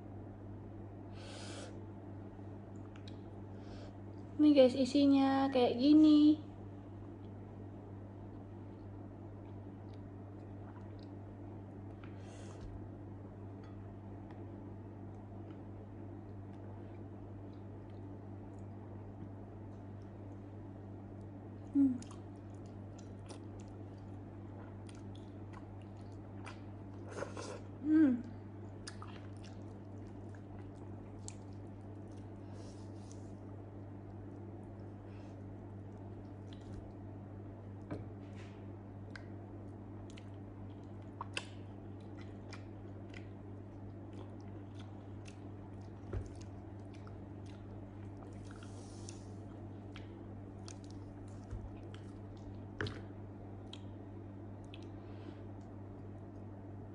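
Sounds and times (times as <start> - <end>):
steady low hum: 0.0 - 56.9
person humming: 21.7 - 22.2, 27.8 - 28.3
wet chewing and mouth clicks: 22.0 - 27.1, 28.6 - 32.4, 35.8 - 37.0, 39.0 - 53.0, 53.6 - 54.0, 54.6 - 55.0
wet mouth clicks and smacks: 40.0 - 43.3.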